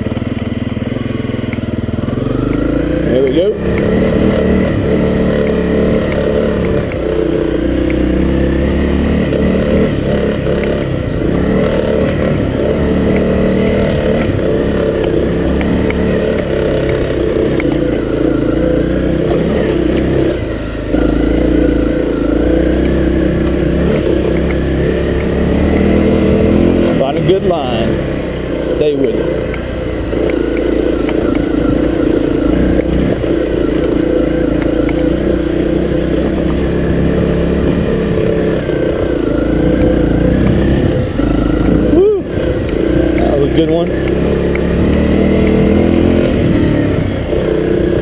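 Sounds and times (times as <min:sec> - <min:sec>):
motorcycle engine under load: 0:00.0 - 0:48.0.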